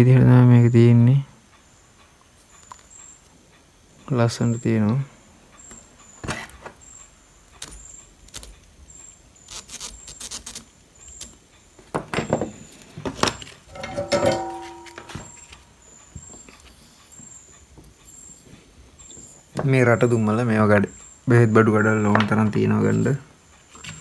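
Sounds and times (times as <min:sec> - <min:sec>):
small hard objects clattering: 0:13.0 - 0:15.6
short metallic ring: 0:13.7 - 0:15.6.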